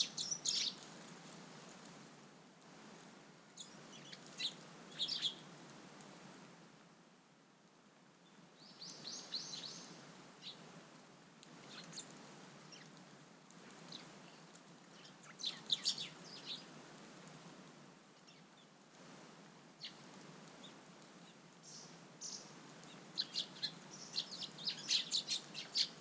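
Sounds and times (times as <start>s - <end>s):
small birds chirping: 0.0s - 1.1s, 3.6s - 5.5s, 8.2s - 10.7s, 11.6s - 16.8s, 18.2s - 18.8s, 19.8s - 26.0s.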